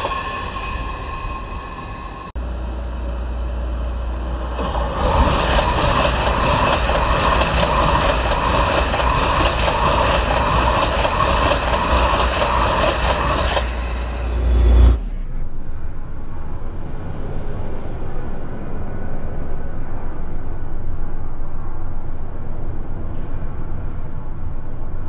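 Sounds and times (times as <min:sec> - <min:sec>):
train rushing past: 0:00.0 - 0:15.2
steady low rumble: 0:00.0 - 0:25.0.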